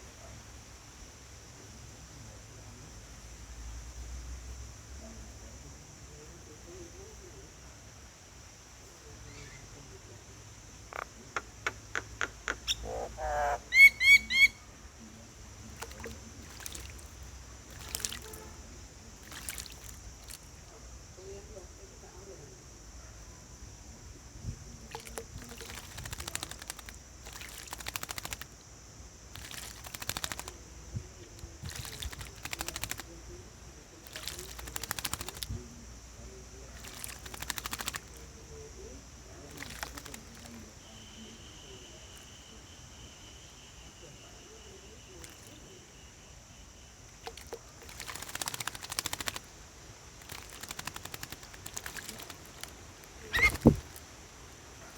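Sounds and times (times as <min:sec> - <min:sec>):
bird splashing in water: 0:15.6 - 0:20.7, 0:24.8 - 0:28.6, 0:29.3 - 0:33.2, 0:34.0 - 0:35.6, 0:36.7 - 0:38.5, 0:39.4 - 0:40.9, 0:45.2 - 0:45.7, 0:47.1 - 0:54.9
wings fluttering: 0:15.7 - 0:18.4, 0:19.2 - 0:20.5, 0:24.9 - 0:28.6, 0:29.3 - 0:30.6, 0:31.2 - 0:33.2, 0:34.0 - 0:35.6, 0:36.7 - 0:38.3, 0:39.5 - 0:40.7, 0:47.2 - 0:54.2.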